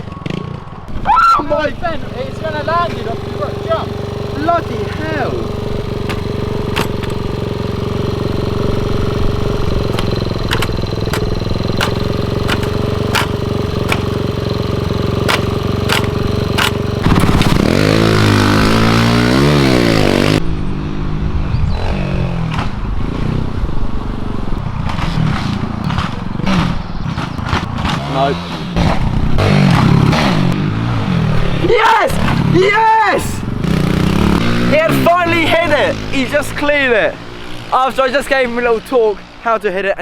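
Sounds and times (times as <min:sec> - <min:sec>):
small motorcycle engine running: 0:00.0 - 0:20.8, 0:21.6 - 0:39.9
sharp clicks and knocks: 0:06.0 - 0:07.5, 0:09.8 - 0:17.7.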